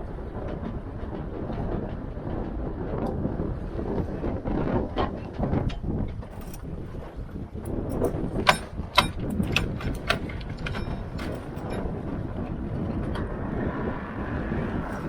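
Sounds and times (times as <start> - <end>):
wind buffeting microphone: 0.0 - 15.0
sharp clicks and knocks: 7.7 - 12.0.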